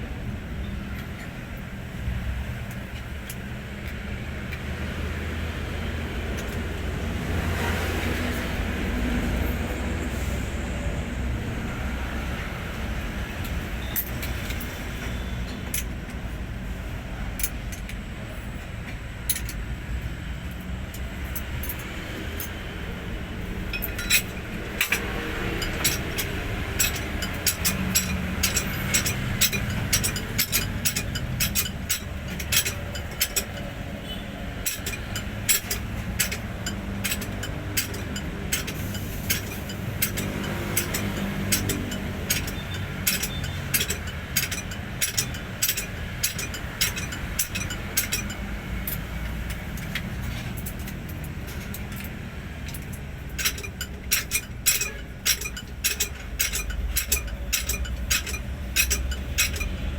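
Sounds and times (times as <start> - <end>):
hand tools clinking on metal: 17.4 - 19.7, 23.4 - 59.9.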